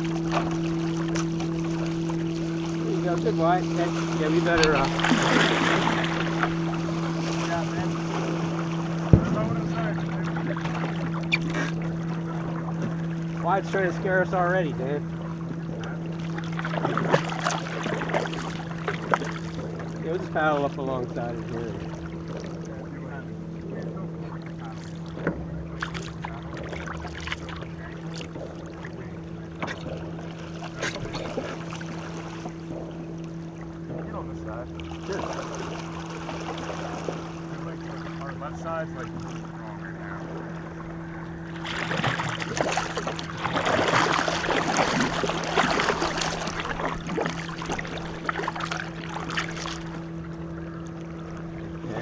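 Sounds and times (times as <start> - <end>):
canoe paddles splashing in water: 0.0 - 52.0
steady low hum: 0.0 - 52.0
paddle knocks: 9.0 - 9.9.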